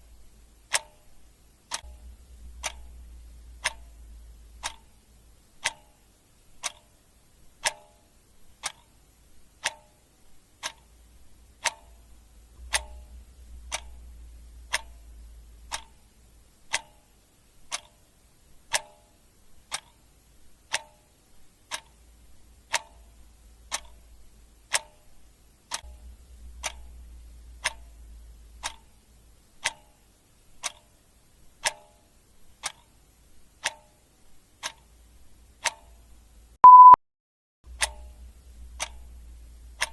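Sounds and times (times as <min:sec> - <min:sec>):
faint low rumble: 0:00.0 - 0:07.7, 0:10.2 - 0:17.7, 0:22.0 - 0:29.7, 0:37.7 - 0:39.9
clock ticking: 0:00.0 - 0:37.0, 0:37.7 - 0:39.9.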